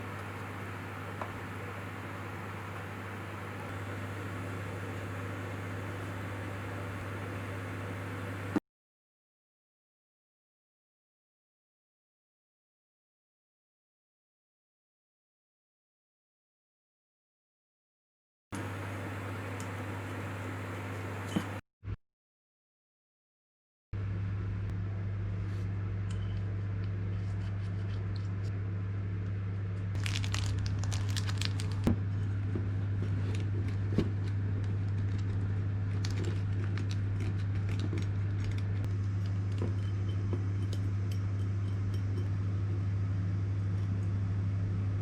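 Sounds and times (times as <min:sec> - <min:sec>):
steady low hum: 0:00.0 - 0:08.6, 0:18.6 - 0:21.6, 0:24.0 - 0:45.0
crinkly rustling: 0:30.0 - 0:31.9, 0:33.0 - 0:39.6.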